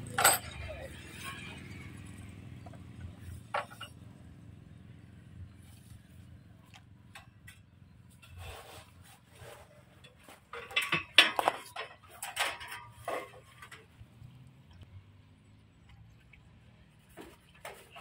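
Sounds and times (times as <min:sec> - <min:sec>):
metal tools clinking and knocking: 0:00.0 - 0:01.8, 0:02.6 - 0:04.0, 0:10.0 - 0:14.0.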